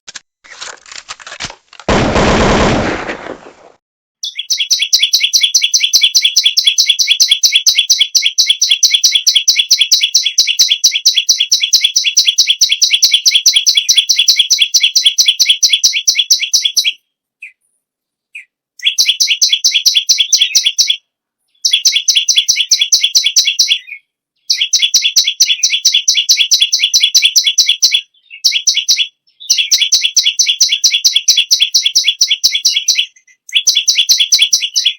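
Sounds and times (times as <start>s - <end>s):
songbird singing rapid high notes: 4.2s - 17.6s, 18.3s - 34.9s.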